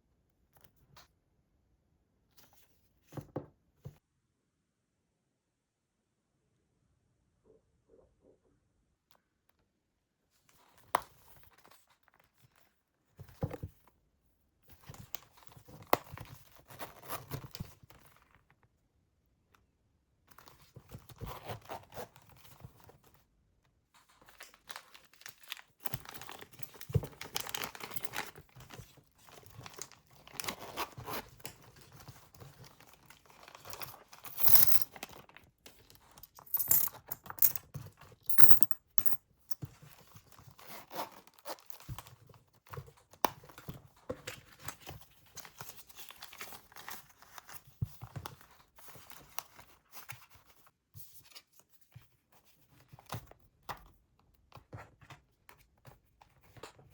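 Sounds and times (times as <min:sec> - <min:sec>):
rustling and crinkling objects: 0:24.0 - 0:35.4.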